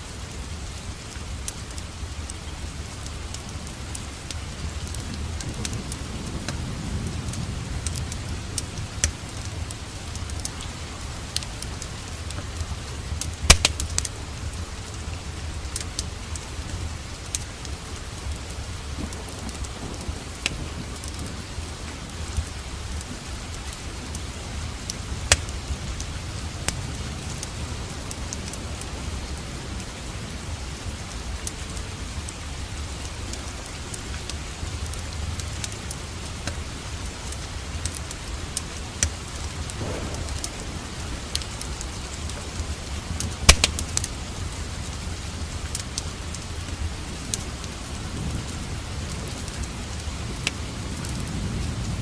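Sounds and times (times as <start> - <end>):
fireplace fire crackling: 0.0 - 52.0
steady rain falling: 0.0 - 52.0
low rumble: 39.7 - 43.4.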